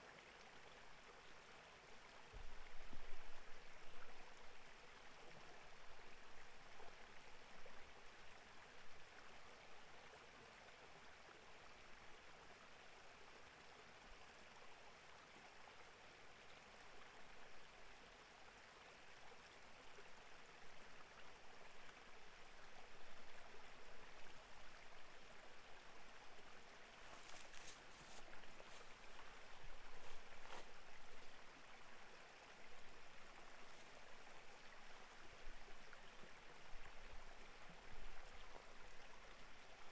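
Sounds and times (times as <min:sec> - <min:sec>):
stream babbling: 0:21.7 - 0:39.9.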